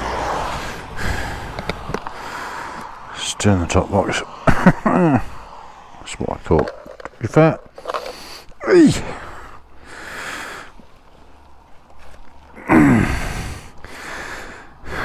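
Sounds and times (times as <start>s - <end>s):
man sighing and breathing heavily: 4.3s - 5.7s, 7.8s - 10.7s, 12.5s - 15.0s
man grunting: 8.6s - 9.4s, 12.6s - 13.4s.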